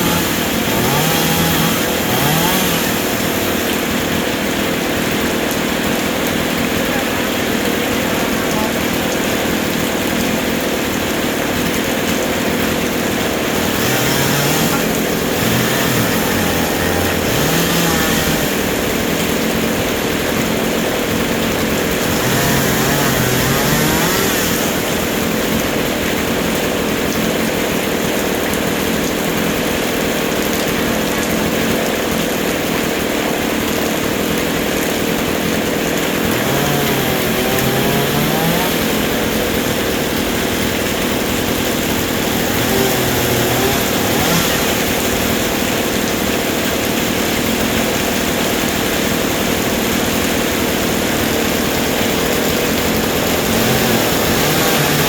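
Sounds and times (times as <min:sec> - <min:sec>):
chainsaw engine revving: 0:00.0 - 0:55.0.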